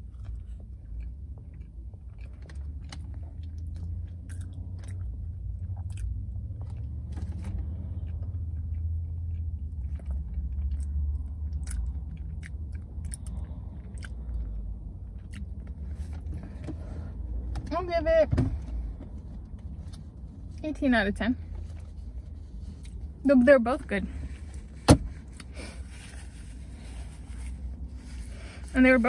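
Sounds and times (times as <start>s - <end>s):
chewing crisp pastry: 0.0s - 16.2s.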